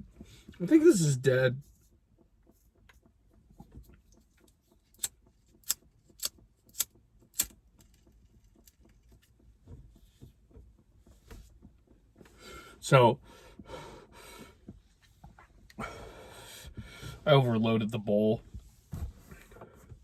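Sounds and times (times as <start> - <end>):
sharp clicks: 4.9 - 8.1.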